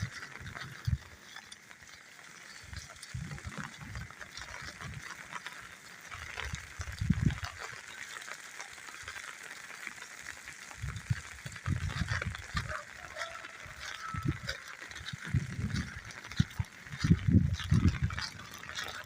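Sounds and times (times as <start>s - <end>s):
rain pattering: 0.0s - 19.0s
low rumbling thumps: 15.0s - 18.3s.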